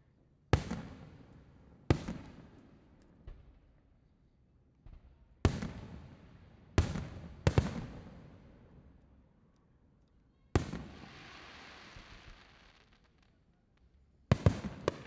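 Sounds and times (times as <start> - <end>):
long hiss: 11.0 - 13.0.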